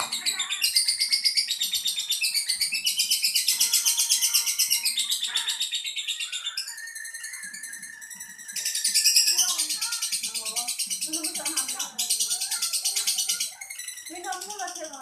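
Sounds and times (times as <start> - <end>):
lovebird chattering song: 0.0 - 15.0.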